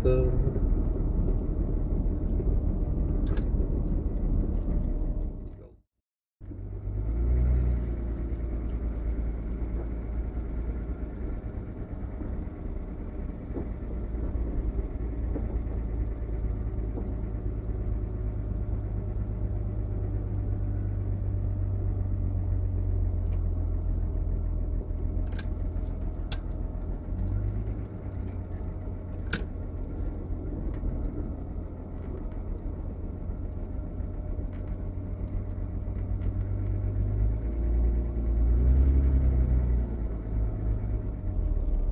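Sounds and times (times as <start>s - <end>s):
vehicle engine and road rumble: 0.0s - 41.9s.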